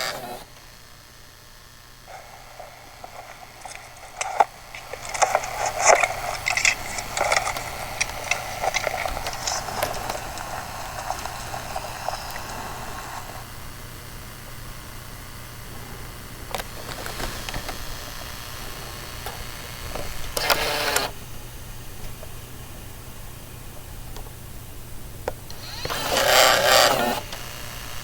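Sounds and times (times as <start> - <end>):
steady low hum: 0.0 - 28.0
camera gear clicks and rattles: 3.0 - 12.2.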